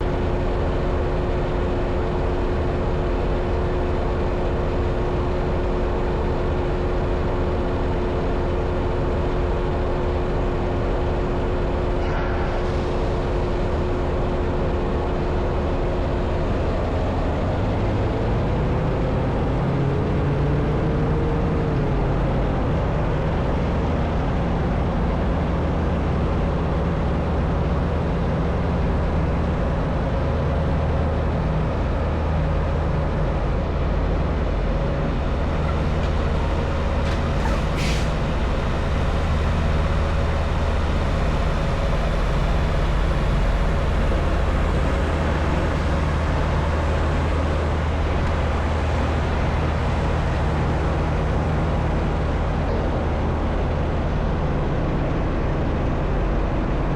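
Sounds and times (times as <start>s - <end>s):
truck diesel engine running: 0.0s - 56.9s.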